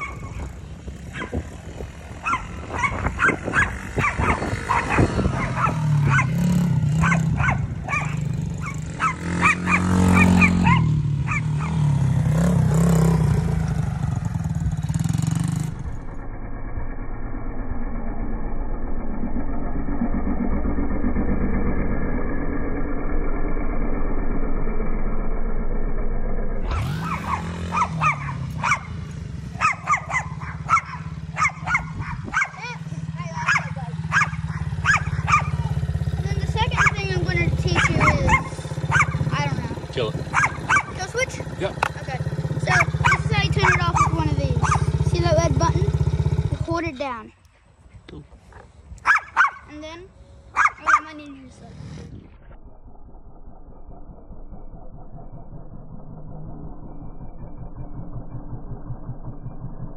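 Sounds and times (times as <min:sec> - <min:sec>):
dog barking: 0:00.0 - 0:00.5, 0:01.1 - 0:01.4, 0:02.2 - 0:06.4, 0:07.0 - 0:11.8, 0:27.0 - 0:29.0, 0:29.6 - 0:32.8, 0:33.4 - 0:35.8, 0:36.7 - 0:37.0, 0:37.7 - 0:39.2, 0:40.3 - 0:41.0, 0:42.7 - 0:44.9, 0:49.0 - 0:49.7, 0:50.5 - 0:51.2
dirt bike engine revving: 0:00.0 - 0:47.3, 0:48.4 - 0:59.9.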